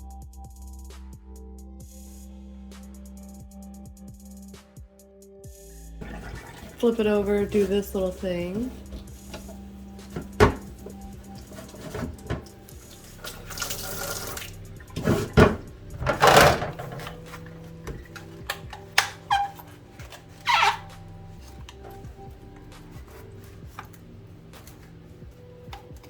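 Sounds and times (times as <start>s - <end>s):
tap water splashing in sink: 6.0s - 7.2s, 11.4s - 19.1s
plastic parts knocking: 8.9s - 12.6s, 15.0s - 20.8s.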